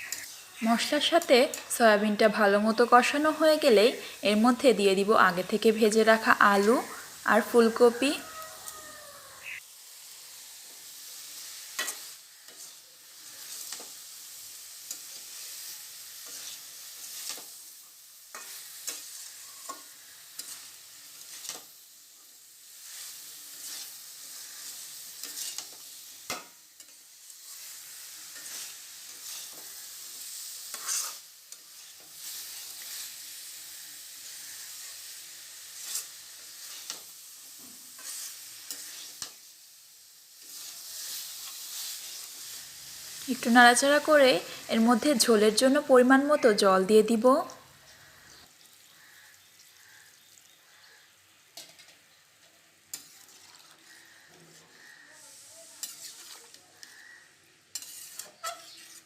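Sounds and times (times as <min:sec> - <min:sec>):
spatula scraping a pan: 0:00.0 - 0:00.5, 0:06.5 - 0:21.8, 0:22.7 - 0:39.5, 0:40.4 - 0:44.6, 0:52.9 - 0:59.0
food sizzling in a pan: 0:00.0 - 0:59.0.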